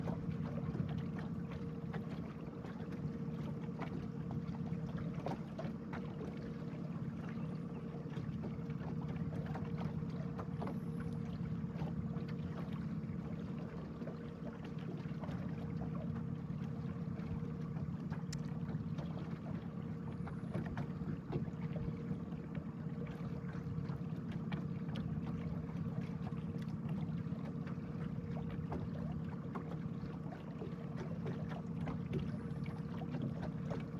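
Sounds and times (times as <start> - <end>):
boat motor humming: 0.0 - 33.9
faint small ticks: 18.1 - 18.6.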